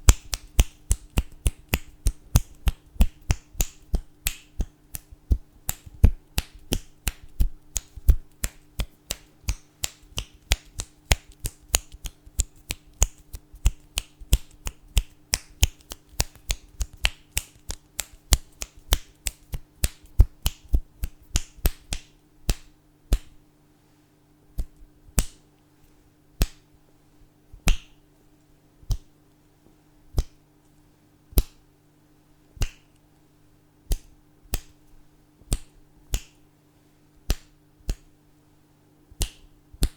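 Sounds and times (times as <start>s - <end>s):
fingers snapping: 0.0s - 23.4s, 24.6s - 25.4s, 26.4s - 26.7s, 27.6s - 28.0s, 28.9s - 29.1s, 30.1s - 30.4s, 31.3s - 31.6s, 32.6s - 33.0s, 33.9s - 34.9s, 35.5s - 36.4s, 37.2s - 38.2s, 39.2s - 39.9s
faint steady hum: 0.0s - 39.9s.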